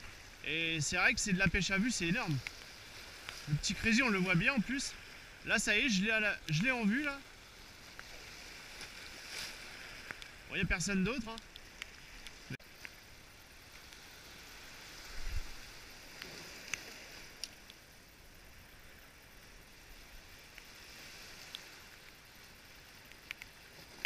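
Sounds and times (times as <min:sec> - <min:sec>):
waves washing over rocks: 0:00.0 - 0:12.9
light clicks: 0:23.0 - 0:23.6.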